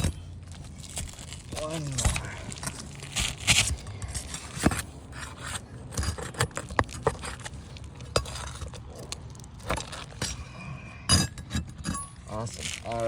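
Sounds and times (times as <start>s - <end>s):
roof shingles scraping: 0.0s - 10.2s.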